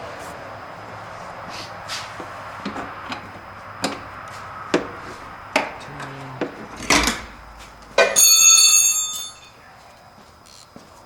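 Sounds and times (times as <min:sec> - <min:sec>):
hand tools knocking and clinking: 0:08.0 - 0:09.6.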